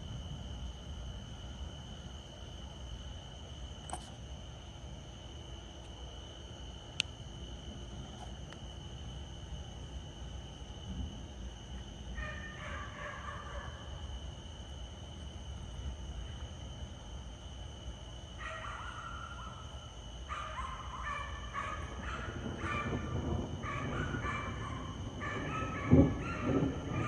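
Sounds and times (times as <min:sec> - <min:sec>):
high insect drone: 0:00.0 - 0:27.0
repeated animal calls: 0:18.4 - 0:27.0.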